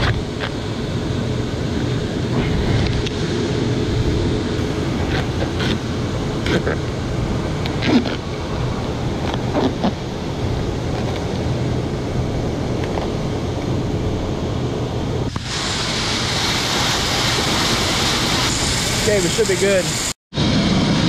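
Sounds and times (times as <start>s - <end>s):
grain machinery humming: 0.0s - 21.0s
bright loud hiss: 15.3s - 20.7s.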